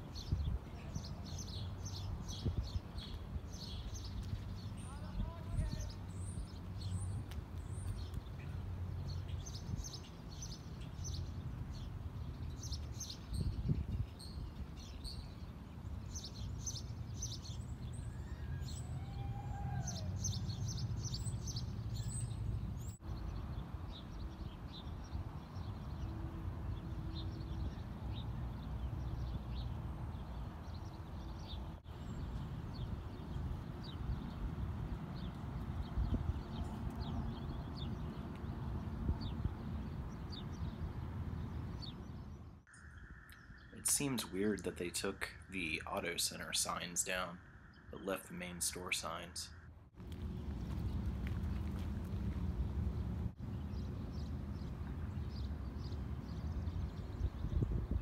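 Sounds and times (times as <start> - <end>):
small birds chirping: 0.0 - 58.0
low outdoor rumble: 49.5 - 58.0.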